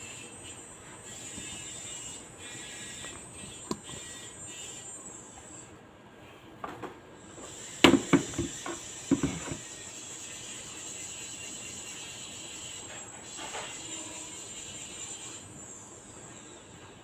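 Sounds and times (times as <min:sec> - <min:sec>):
sharp knocks of hard objects: 0:07.8 - 0:09.6.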